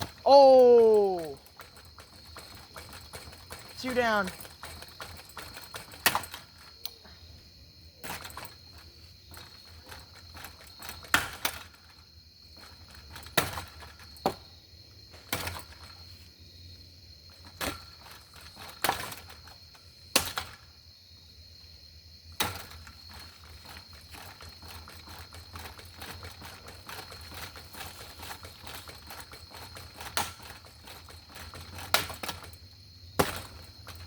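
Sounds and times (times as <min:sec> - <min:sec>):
ceiling fan humming: 0:00.0 - 0:04.9.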